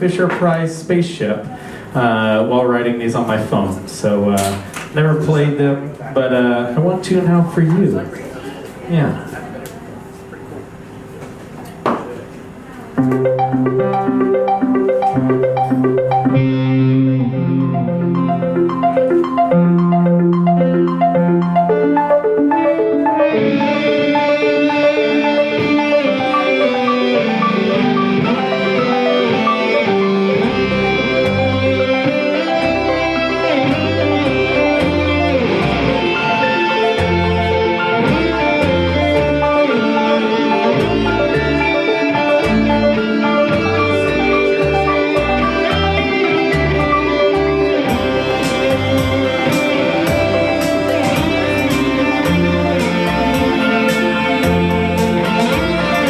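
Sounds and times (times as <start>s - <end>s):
live band guitar instrumental: 10.6s - 56.0s
bass line: 13.0s - 56.0s.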